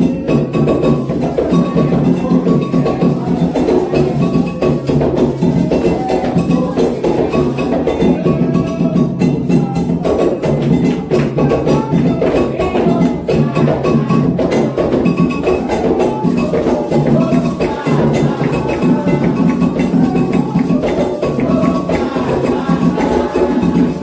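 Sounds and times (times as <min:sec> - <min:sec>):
hand drums playing: 0:00.0 - 0:24.0
struck bell ringing: 0:12.9 - 0:24.0.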